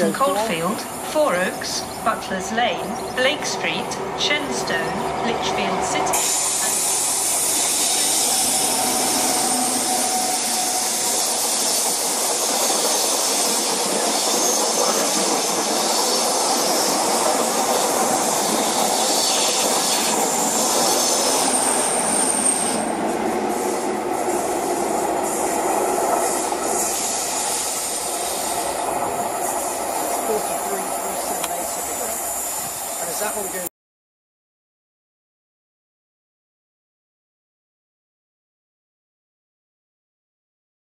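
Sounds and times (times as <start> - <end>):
diesel train passing at speed: 0.0 - 33.7
brief high squeal: 7.9 - 11.5.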